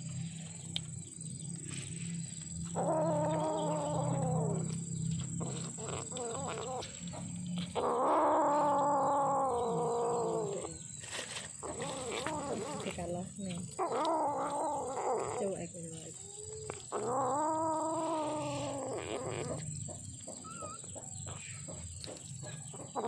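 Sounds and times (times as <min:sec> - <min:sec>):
kitten yowling angrily: 0:02.8 - 0:04.7, 0:07.8 - 0:10.8, 0:13.8 - 0:15.7, 0:16.9 - 0:19.6.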